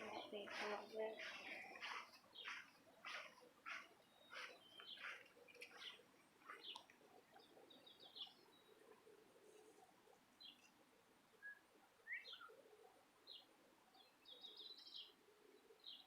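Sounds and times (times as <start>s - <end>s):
faint bird chirping: 0.0s - 16.0s
bird twittering: 1.2s - 6.8s.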